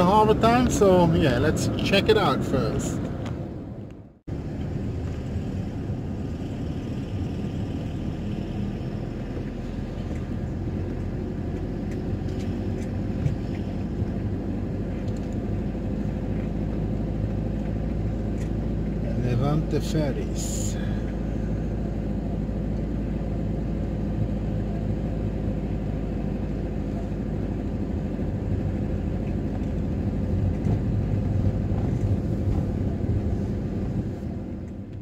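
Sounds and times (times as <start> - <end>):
van engine and road rumble: 0.0 - 35.0.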